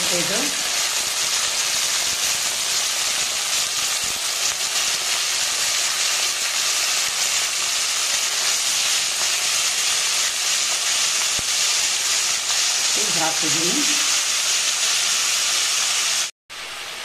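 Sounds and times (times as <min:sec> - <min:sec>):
chillies sizzling in hot oil: 0:00.0 - 0:17.0.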